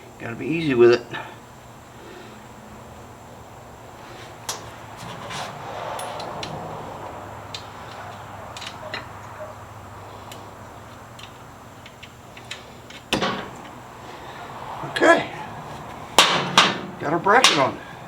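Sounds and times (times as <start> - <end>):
hand tools tapping on metal: 4.4 - 14.6, 15.4 - 18.0
metal clank: 11.2 - 14.3, 16.1 - 17.9.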